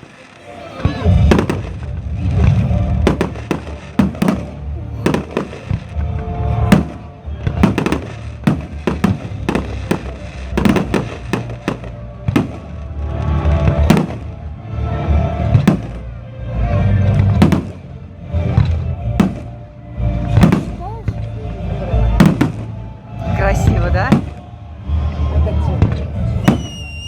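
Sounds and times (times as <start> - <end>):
fireworks bangs: 0.0 - 21.3, 22.0 - 27.0
music playing: 0.0 - 27.0.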